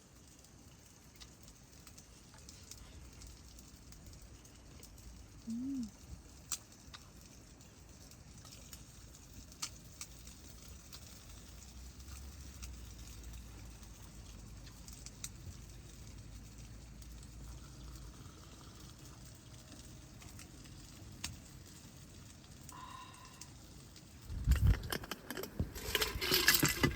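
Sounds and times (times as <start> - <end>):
wind rumbling on microphone: 24.2 - 26.9.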